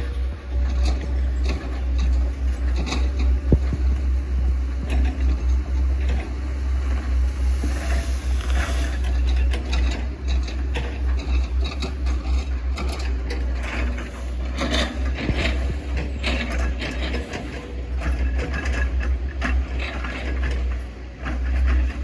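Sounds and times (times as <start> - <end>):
excavator diesel engine running: 0.0 - 22.0
machine clicks and knocks: 9.0 - 22.0.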